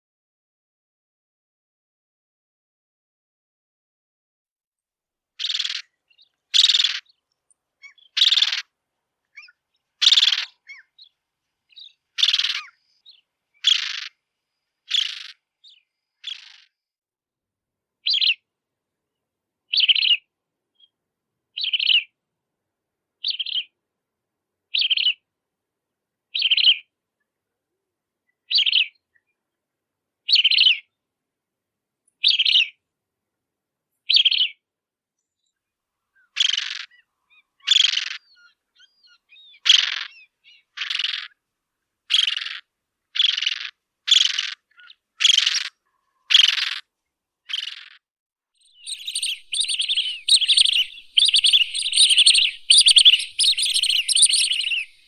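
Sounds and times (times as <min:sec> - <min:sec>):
tern harsh calls: 0:09.4 - 0:10.9, 0:48.7 - 0:55.0.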